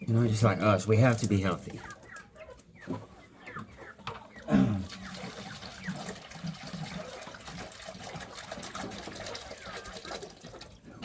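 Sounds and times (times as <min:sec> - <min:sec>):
water running and splashing: 0:04.8 - 0:11.0.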